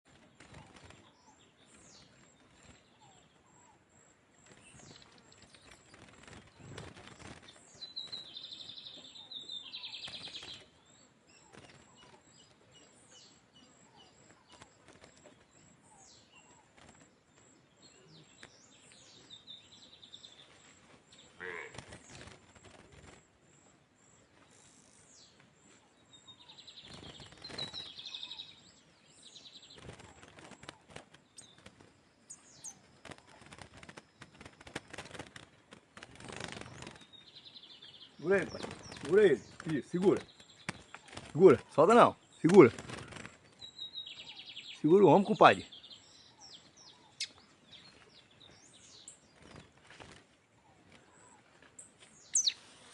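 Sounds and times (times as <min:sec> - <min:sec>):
songbird singing short phrases: 0:07.8 - 0:14.6, 0:24.5 - 0:29.8, 0:36.8 - 0:49.2, 0:52.2 - 0:52.9.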